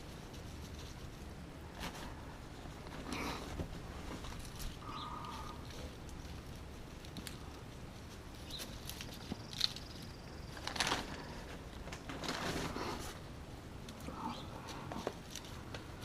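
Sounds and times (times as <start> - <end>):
rustling: 0.0 - 16.0.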